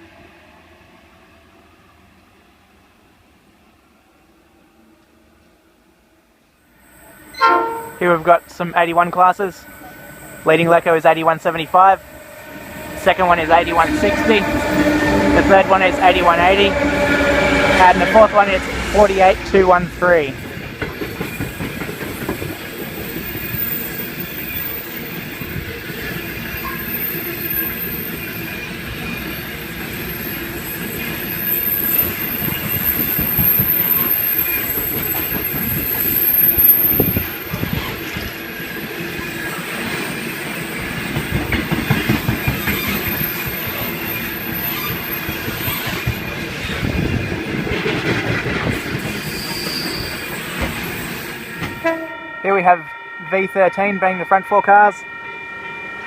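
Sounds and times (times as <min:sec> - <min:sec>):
freight train rolling past: 0:00.0 - 0:56.0
high-pitched wheel squeal: 0:07.0 - 0:08.2, 0:26.0 - 0:38.2, 0:42.4 - 0:46.8, 0:49.2 - 0:51.9
wheels clicking over rail joints: 0:41.0 - 0:43.8.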